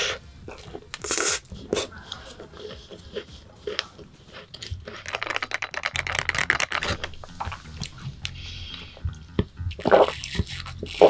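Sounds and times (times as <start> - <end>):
chewing crunchy pastry: 0.5 - 7.7.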